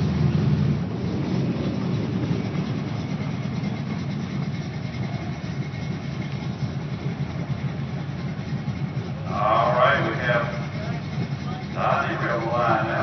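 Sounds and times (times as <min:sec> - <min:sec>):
race car engines idling: 0:00.0 - 0:13.0.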